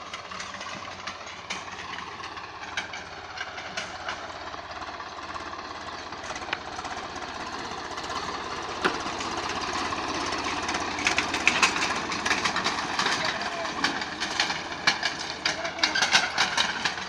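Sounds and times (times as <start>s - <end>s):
diesel tractor engine running: 0.0s - 17.0s.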